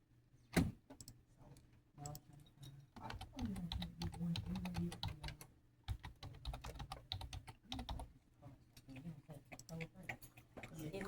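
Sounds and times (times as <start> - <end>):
person speaking: 3.0 - 8.1
rapid clicking taps: 3.0 - 8.1.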